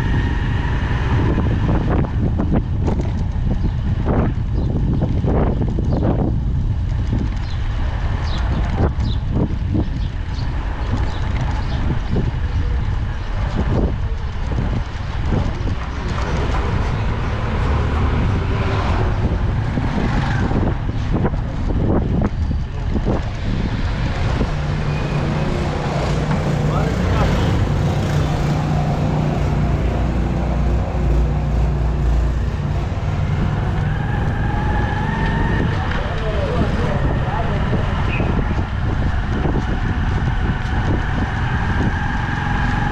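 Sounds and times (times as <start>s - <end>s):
wind on microphone: 0.0s - 42.9s
motorcycle engine running: 1.8s - 33.9s.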